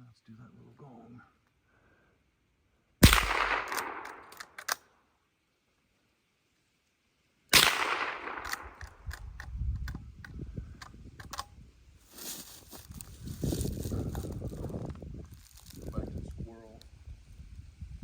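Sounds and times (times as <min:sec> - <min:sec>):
rifle shots with ringing tail: 0:03.0 - 0:04.6, 0:07.5 - 0:09.0
rifle action clicks: 0:03.1 - 0:04.8, 0:07.6 - 0:10.0, 0:10.8 - 0:11.5.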